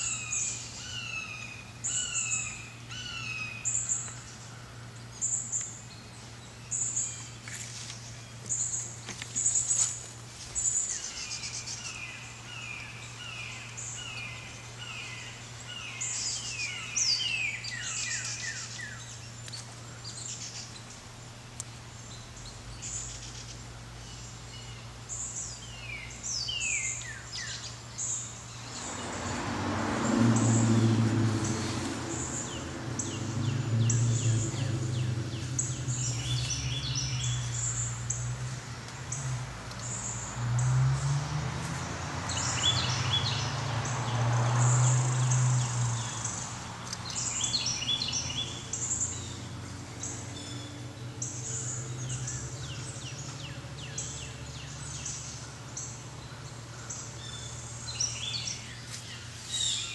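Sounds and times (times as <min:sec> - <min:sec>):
small birds chirping: 0:00.0 - 0:29.4, 0:30.0 - 0:59.9
rushing noise with low rumble: 0:28.6 - 0:48.2.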